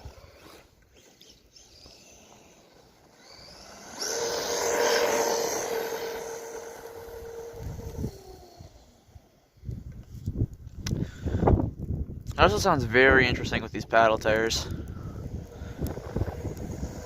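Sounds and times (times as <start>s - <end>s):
electric motor whining: 0.0s - 9.4s, 14.5s - 17.0s
tires churning snow: 0.0s - 9.6s, 12.4s - 17.0s.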